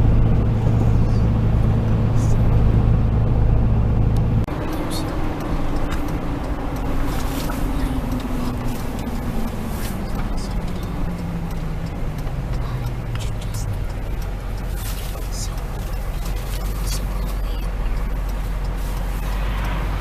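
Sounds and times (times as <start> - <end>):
diesel engine running: 0.0 - 20.0
road noise: 0.0 - 20.0.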